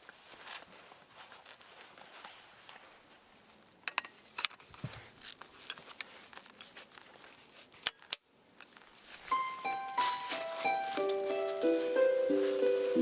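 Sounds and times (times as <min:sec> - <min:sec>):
light rustling: 0:08.6 - 0:13.0.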